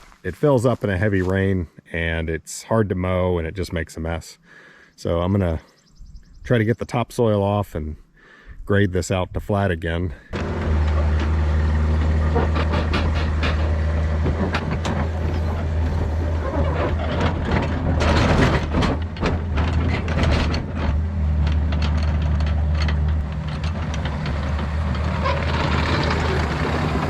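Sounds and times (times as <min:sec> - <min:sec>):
excavator diesel engine running: 0:10.3 - 0:27.0
bucket clanking and scraping soil: 0:10.4 - 0:27.0.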